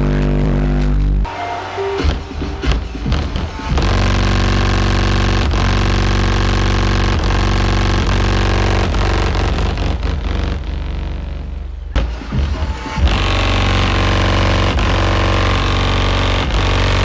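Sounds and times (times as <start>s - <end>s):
engine revving at high revs: 3.7s - 11.3s, 13.0s - 17.0s.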